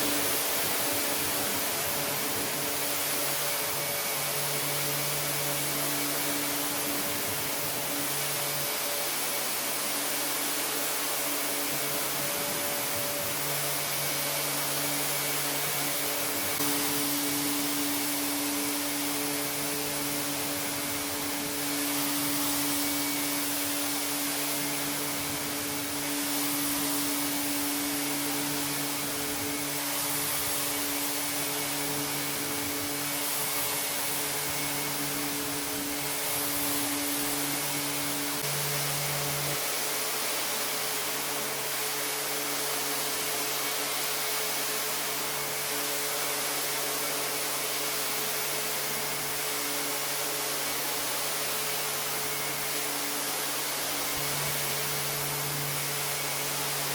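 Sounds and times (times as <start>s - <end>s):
lower hum: 0.0s - 41.8s
cleaning machine motor hissing: 0.0s - 56.9s.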